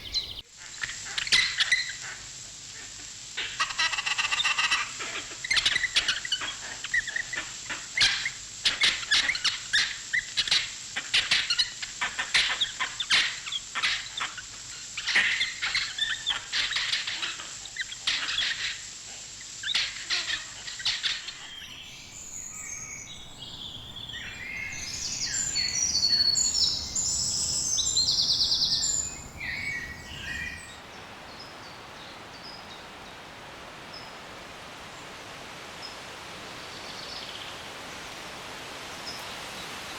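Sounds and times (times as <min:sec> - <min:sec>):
scattered bird calls: 0:00.0 - 0:00.4, 0:20.3 - 0:30.8
background ambience hiss: 0:00.0 - 0:39.9
sharp bird chirps: 0:21.4 - 0:30.8.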